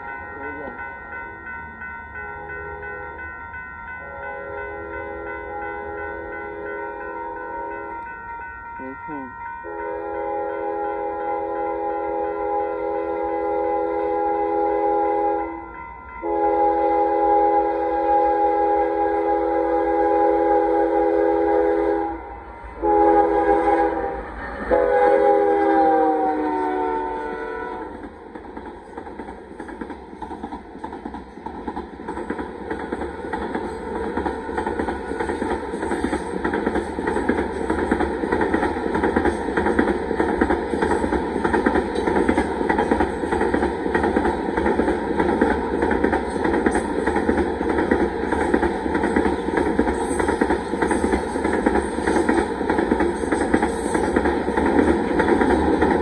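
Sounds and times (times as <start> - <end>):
locomotive air horn blasts: 4.0 - 7.9, 9.7 - 28.0
train wheels clacking on rails: 26.8 - 56.0.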